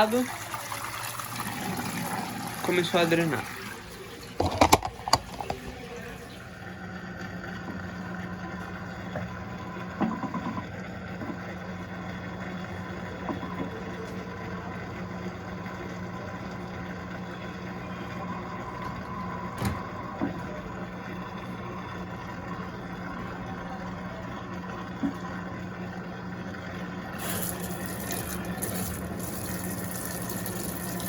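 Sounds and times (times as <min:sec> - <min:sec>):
washing machine drain pump humming: 0:00.0 - 0:31.0.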